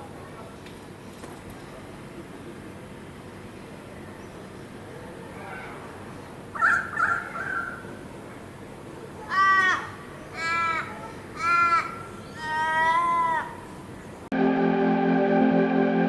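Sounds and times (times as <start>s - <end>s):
music: 14.3s - 16.0s.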